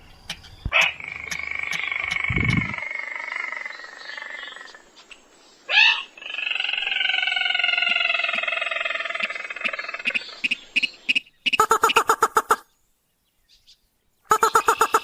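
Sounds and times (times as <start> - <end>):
rail and crake calls: 5.8 - 12.7, 14.3 - 15.0.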